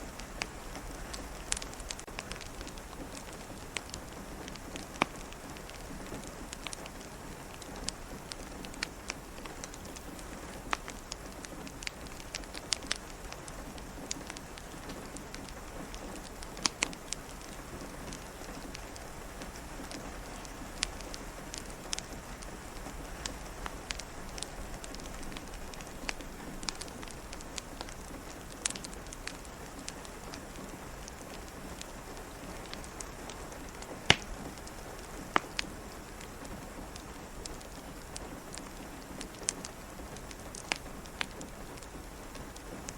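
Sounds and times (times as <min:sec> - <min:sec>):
steady rain falling: 0:00.0 - 0:42.9
wood fire crackling: 0:00.0 - 0:42.9.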